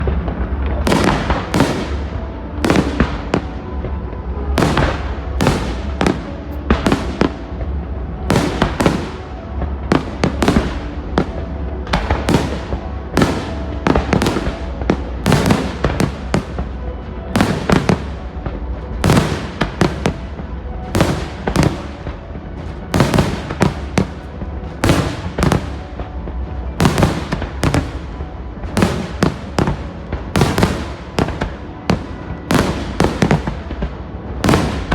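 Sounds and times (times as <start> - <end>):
fireworks bangs: 0.0 - 34.9
steady low rumble: 0.0 - 34.9.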